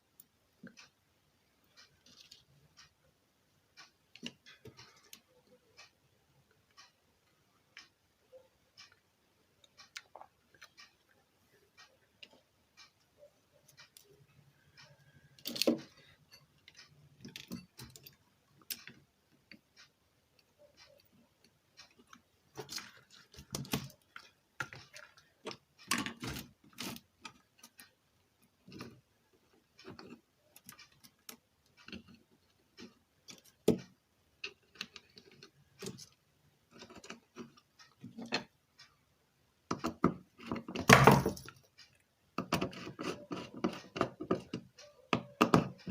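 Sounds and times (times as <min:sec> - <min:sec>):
metal tools clicking and tapping: 0:11.8 - 0:19.7, 0:21.8 - 0:27.9, 0:39.7 - 0:45.9.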